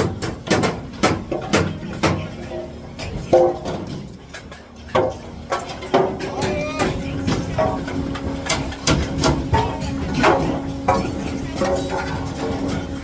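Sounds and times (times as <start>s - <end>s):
hammer striking metal panels: 0.0s - 2.5s.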